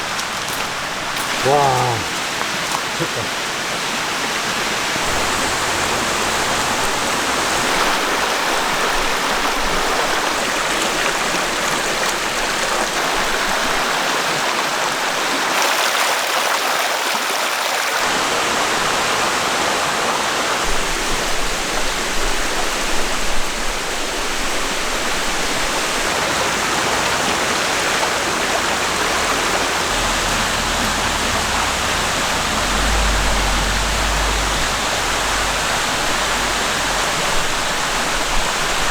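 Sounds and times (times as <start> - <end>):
stream flowing over rocks: 0.0 - 38.9
low rumble: 29.0 - 38.6.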